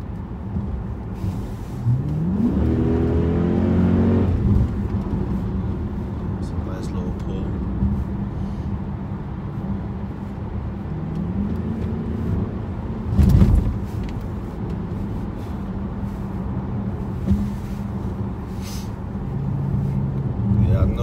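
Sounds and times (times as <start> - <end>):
car engine hum: 0.0 - 21.0
road noise: 0.0 - 21.0
short thump: 13.1 - 14.2, 17.2 - 17.7.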